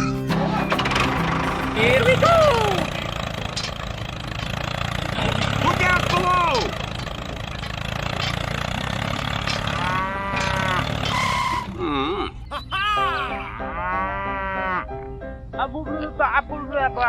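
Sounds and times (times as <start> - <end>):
music: 0.0 - 3.7, 12.6 - 17.0
small engine running: 0.0 - 11.8
animal calls: 9.4 - 15.0
cow-like mooing: 9.7 - 11.8, 13.6 - 14.9.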